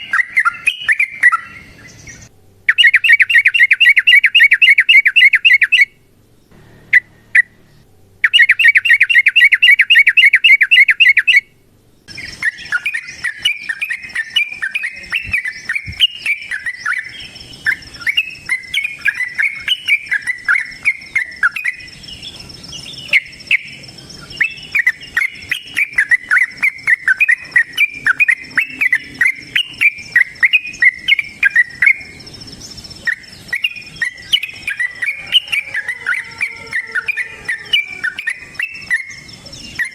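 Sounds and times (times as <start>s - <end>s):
bird chattering calls: 0.0s - 11.5s, 12.1s - 39.9s
bird chirping song: 0.0s - 39.9s
faint high-pitched buzz: 5.6s - 35.3s.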